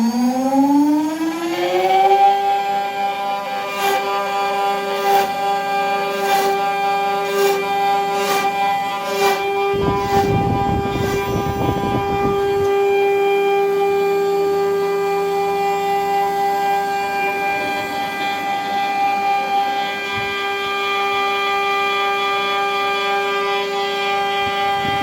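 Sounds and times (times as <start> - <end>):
rough carving noise: 0.0 - 25.0
router spindle whining: 0.0 - 25.0.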